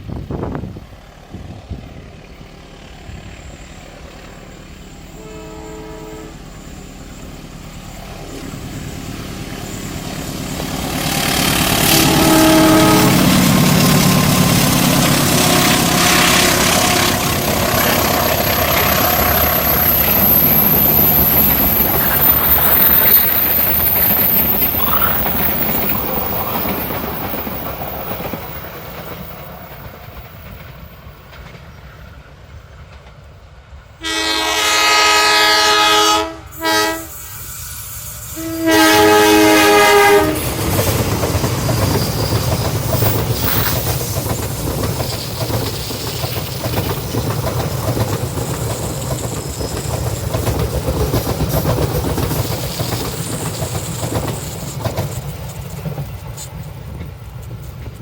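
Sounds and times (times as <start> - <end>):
passenger train passing: 0.0 - 58.0
train horn blasts: 5.0 - 6.8, 11.0 - 19.4, 34.0 - 40.6
wheels clickety-clack on rails: 7.9 - 34.0, 38.7 - 58.0.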